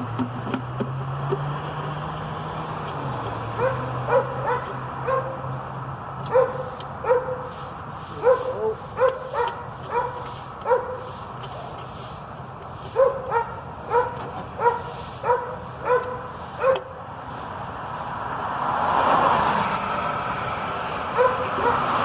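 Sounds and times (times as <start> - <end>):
dog barking and yipping: 3.5 - 5.5, 6.3 - 7.5, 8.2 - 11.1, 12.9 - 17.0, 21.1 - 22.0.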